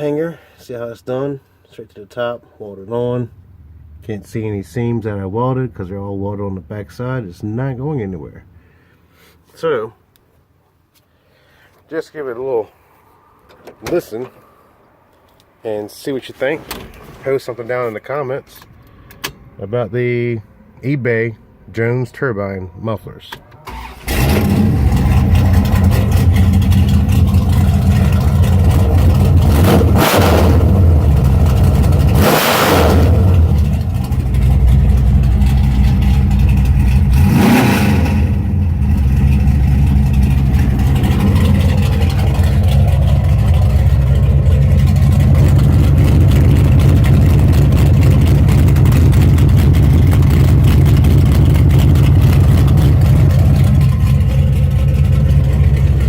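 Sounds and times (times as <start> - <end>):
car engine idling and revving: 23.8 - 56.0.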